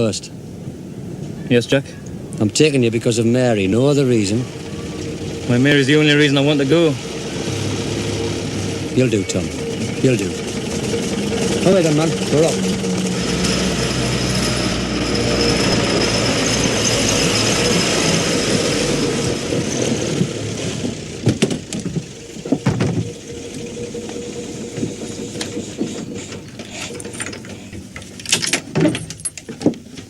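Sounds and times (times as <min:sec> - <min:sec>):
vehicle engine running loudly: 0:03.4 - 0:27.8
knocks: 0:20.2 - 0:23.2.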